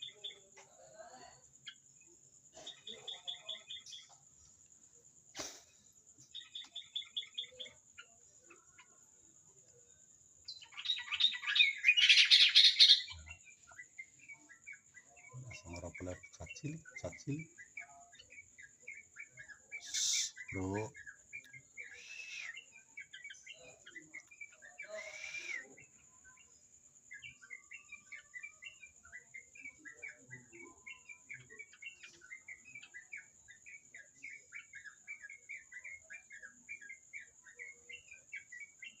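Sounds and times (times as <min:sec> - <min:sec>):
bird chirping rapidly: 0:10.5 - 0:25.7.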